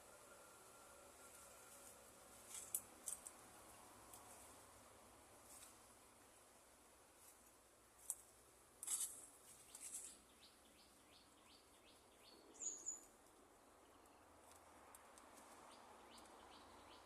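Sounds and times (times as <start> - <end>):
faint rustle: 0.5 - 10.5
small bird chirping: 9.5 - 13.2, 15.5 - 17.0.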